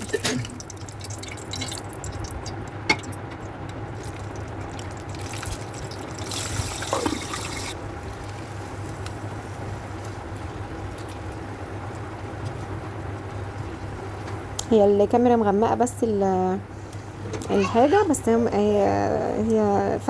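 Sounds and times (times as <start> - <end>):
food frying in hot oil: 0.0 - 14.6.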